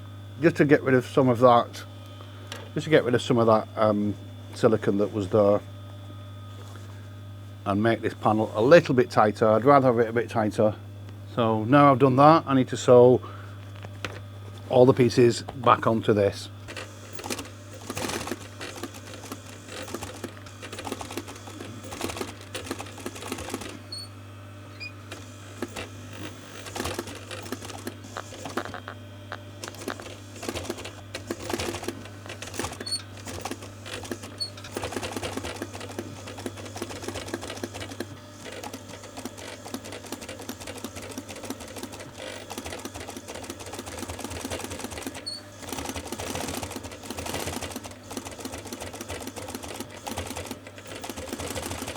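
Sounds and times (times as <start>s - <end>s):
sewing machine stitching: 16.6s - 24.1s, 25.1s - 29.0s, 29.6s - 51.9s.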